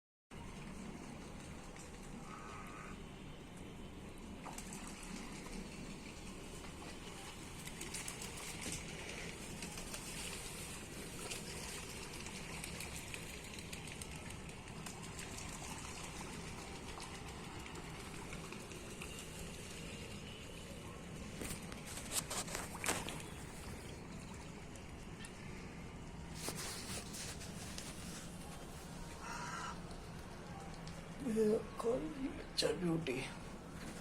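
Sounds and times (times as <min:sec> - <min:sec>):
water trickling and splashing: 0:00.4 - 0:02.3, 0:03.4 - 0:32.0.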